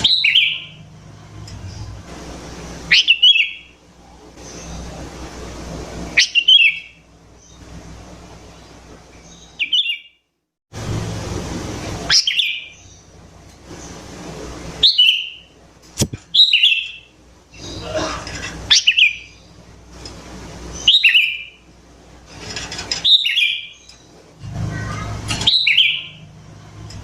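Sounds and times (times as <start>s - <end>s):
low hum: 10.8s - 16.6s, 24.3s - 27.0s
sharp click: 16.0s - 16.3s.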